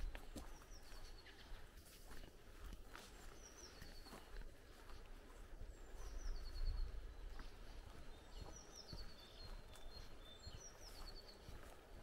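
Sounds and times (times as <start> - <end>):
soft footsteps on path: 0.0 - 12.0
songbird singing: 0.0 - 12.0.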